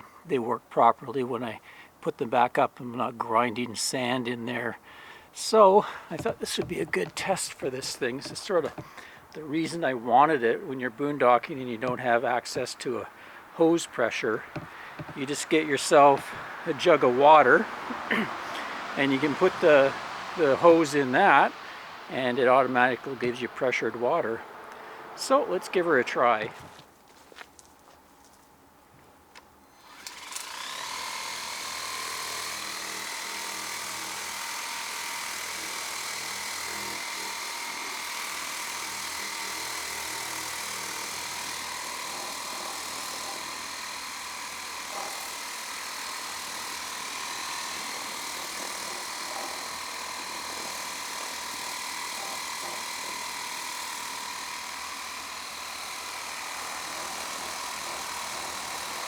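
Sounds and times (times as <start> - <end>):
pressure washer pump whine: 3.8 - 26.6, 29.8 - 59.0
water spray hissing: 4.7 - 26.5.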